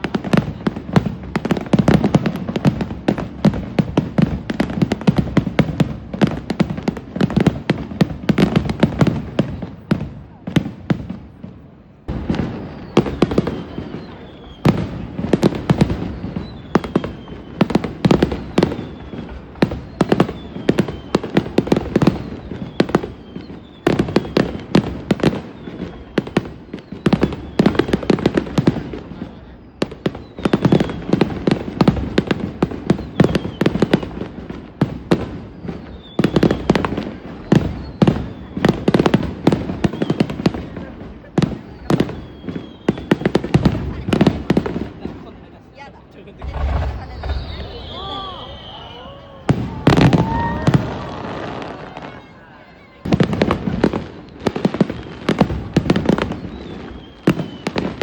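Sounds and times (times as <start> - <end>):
fireworks bursting: 0.0 - 58.0
faint falling whistles: 12.5 - 14.8, 42.2 - 43.0, 46.4 - 52.4, 56.4 - 57.8.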